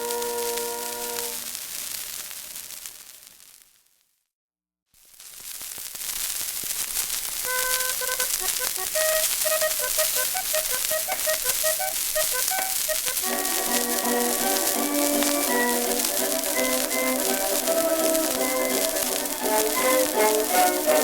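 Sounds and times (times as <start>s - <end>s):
record surface hiss and crackle: 0.0s - 4.2s, 4.9s - 21.0s
fuller musical accompaniment: 7.6s - 21.0s
thin melody of short notes: 7.6s - 21.0s.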